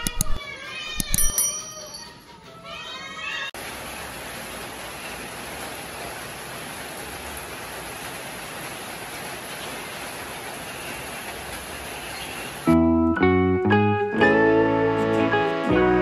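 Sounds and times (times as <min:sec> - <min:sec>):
steady rain falling: 0:03.6 - 0:12.8.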